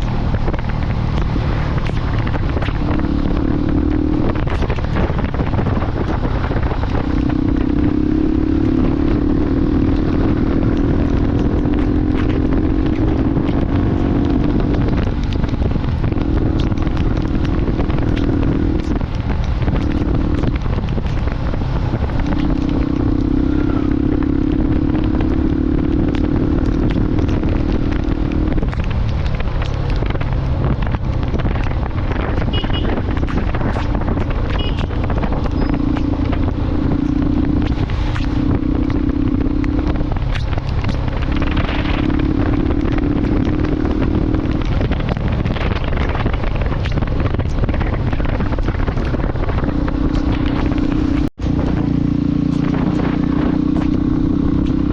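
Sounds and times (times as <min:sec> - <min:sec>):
motorcycle engine running: 0:00.0 - 0:54.9
wind rumble on microphone: 0:00.0 - 0:54.9.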